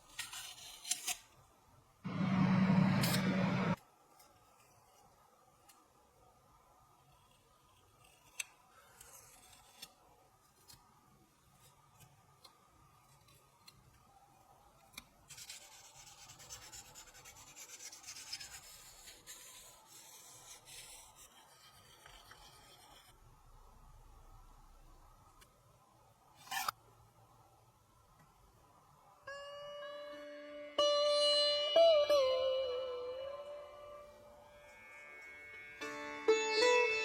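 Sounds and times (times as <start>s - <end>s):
scratchy rubbing: 15.3s - 23.2s.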